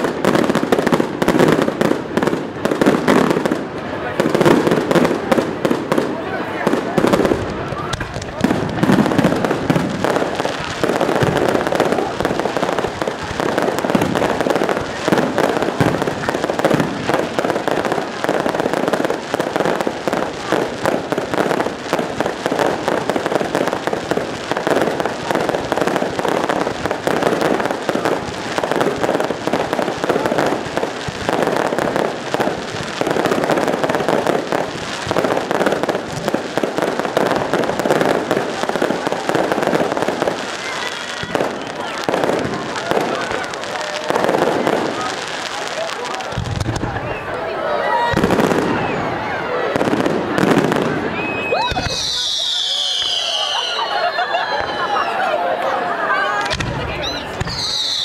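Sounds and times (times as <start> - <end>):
fireworks crackling: 0.0 - 58.0.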